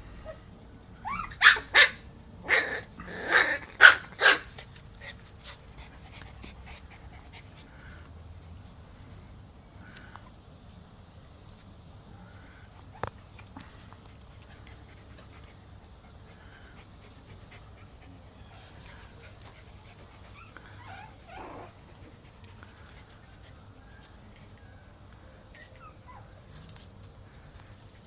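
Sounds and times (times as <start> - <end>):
puppies whimpering and squeaking: 1.0 - 3.6, 20.0 - 21.9, 25.5 - 26.5.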